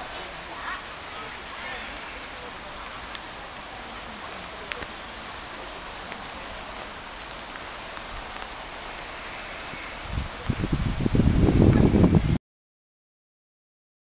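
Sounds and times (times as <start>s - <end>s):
open-air background hiss: 0.0s - 12.4s
faint clicks: 3.1s - 3.3s, 4.4s - 9.1s.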